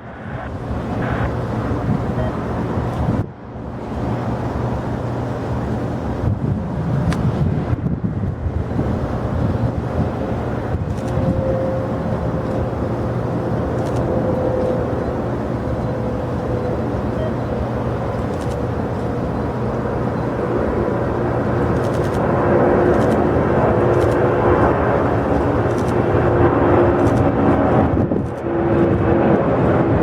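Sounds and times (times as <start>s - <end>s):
jet engines rumbling and whining: 0.0s - 30.0s.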